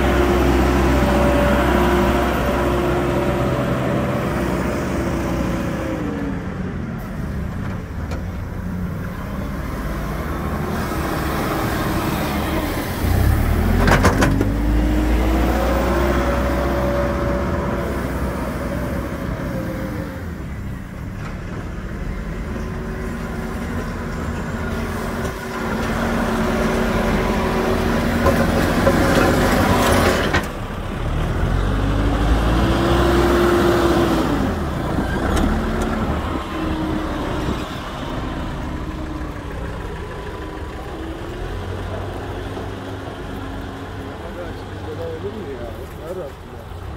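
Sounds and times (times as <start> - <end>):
backhoe diesel engine working: 0.0 - 46.9.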